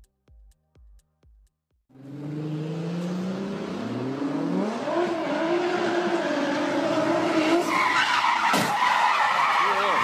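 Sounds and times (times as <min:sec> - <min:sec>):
car engine revving hard: 0:01.9 - 0:07.8.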